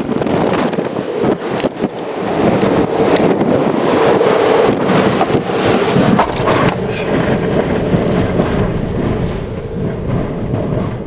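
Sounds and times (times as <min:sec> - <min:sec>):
surf rushing: 0:00.0 - 0:11.0
wind buffeting microphone: 0:00.0 - 0:11.0
sharp clatter: 0:05.2 - 0:11.0.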